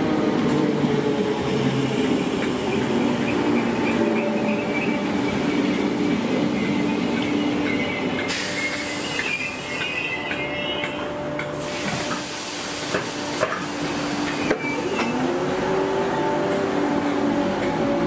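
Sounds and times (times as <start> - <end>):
train hiss: 8.3 - 10.0, 11.4 - 15.3.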